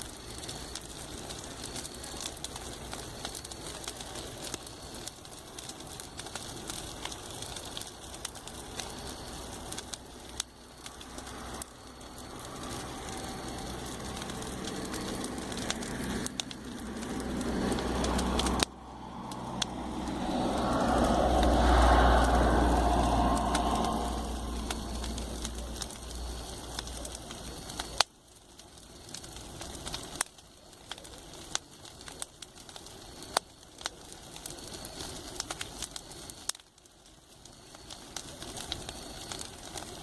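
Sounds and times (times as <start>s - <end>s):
campfire crackling: 0.0s - 40.0s
vehicles passing on road: 8.8s - 27.0s.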